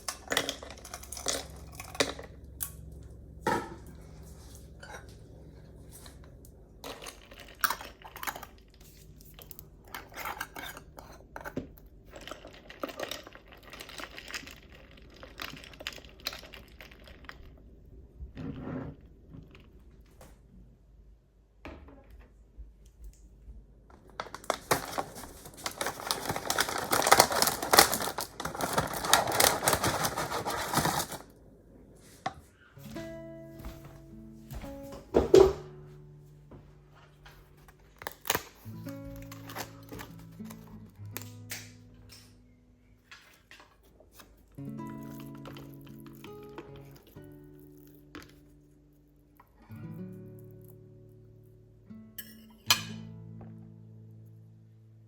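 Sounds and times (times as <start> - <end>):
rustling: 23.9 - 31.3.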